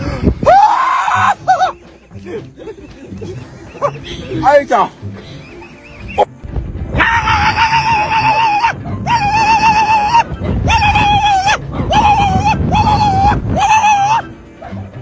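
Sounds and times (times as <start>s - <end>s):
dog howling: 7.0s - 14.8s.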